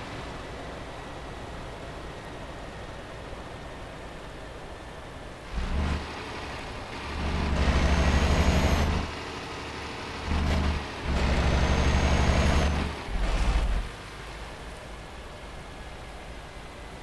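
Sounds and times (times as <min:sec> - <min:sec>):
diesel engine working hard: 0:05.5 - 0:14.2.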